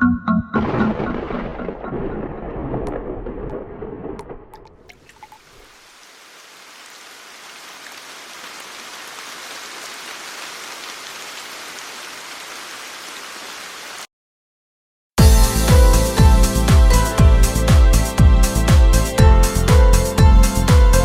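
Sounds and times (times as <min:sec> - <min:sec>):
electronic music with a beat: 0:00.0 - 0:00.8, 0:15.2 - 0:21.0
heavy rain: 0:00.6 - 0:14.1.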